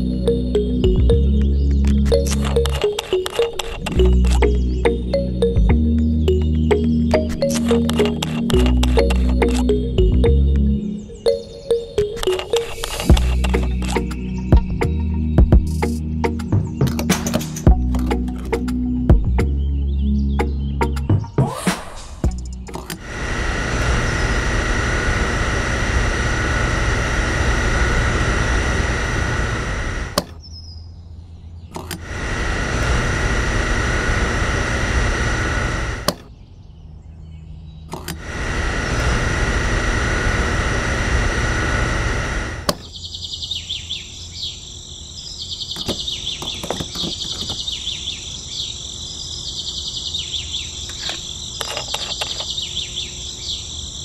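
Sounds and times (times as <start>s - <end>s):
birds chirping: 0.0s - 23.2s, 28.5s - 32.6s, 34.2s - 39.2s, 42.2s - 54.0s
small electric pump motor: 22.7s - 30.2s, 31.8s - 36.2s, 38.0s - 42.9s
insects chirping: 42.8s - 54.0s.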